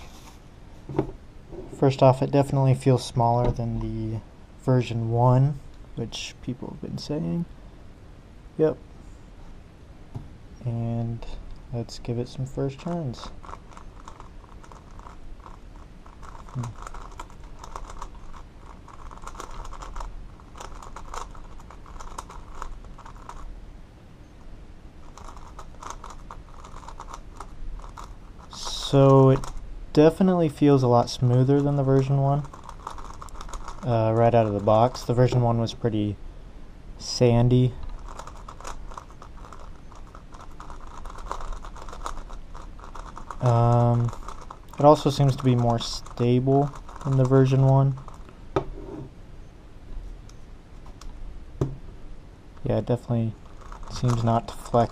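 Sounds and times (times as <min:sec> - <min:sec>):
plastic puzzle cube clicking: 0:13.4 - 0:23.4, 0:25.1 - 0:28.2, 0:32.4 - 0:33.8, 0:37.8 - 0:48.3.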